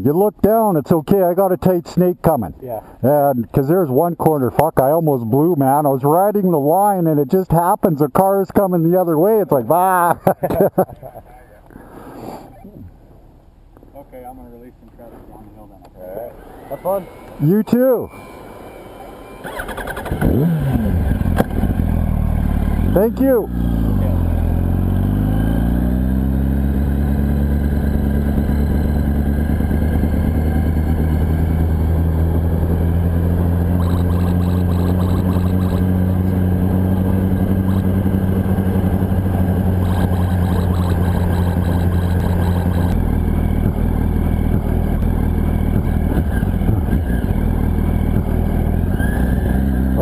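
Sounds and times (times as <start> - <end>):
motorcycle engine running: 18.2 - 50.0.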